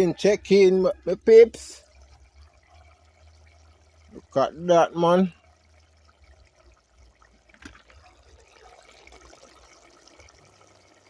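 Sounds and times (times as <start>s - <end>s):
pot bubbling: 0.0s - 11.0s.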